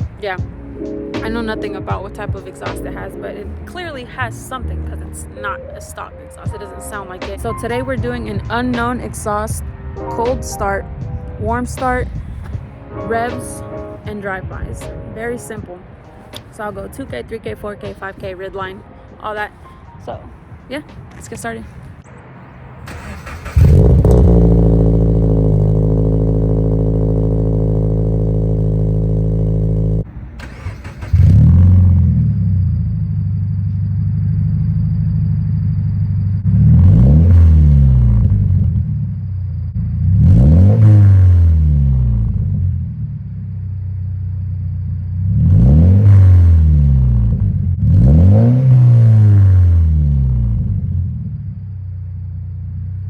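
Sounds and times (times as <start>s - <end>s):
car engine idling and revving: 0.0s - 15.2s, 20.5s - 53.0s.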